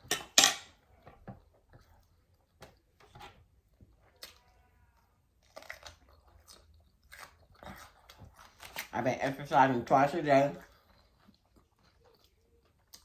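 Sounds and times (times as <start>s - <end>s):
faint chewing: 0.7s - 9.0s, 10.5s - 13.0s.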